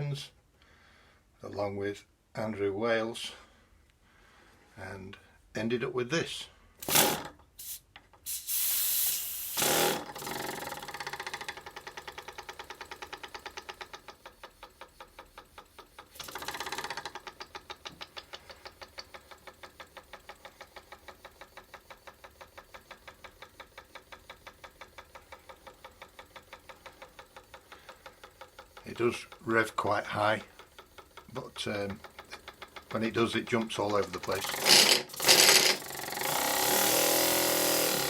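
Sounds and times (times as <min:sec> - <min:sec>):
air hissing bursts: 0:06.8 - 0:10.0
steam engine chuffing: 0:09.1 - 0:36.7.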